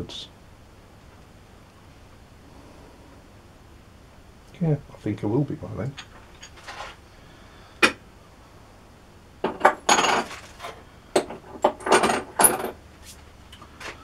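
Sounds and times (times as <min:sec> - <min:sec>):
steel tools clinking and knocking: 0:06.0 - 0:07.0, 0:09.4 - 0:12.8.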